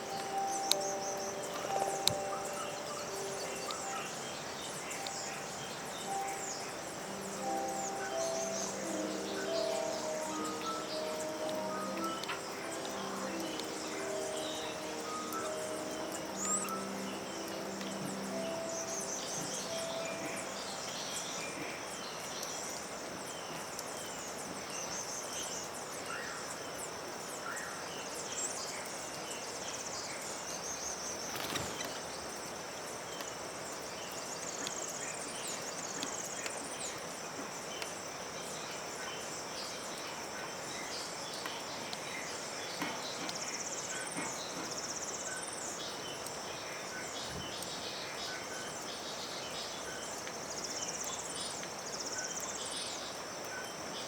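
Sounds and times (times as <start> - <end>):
high-pitched insect drone: 0.0 - 21.4
bird chirps: 0.0 - 22.7.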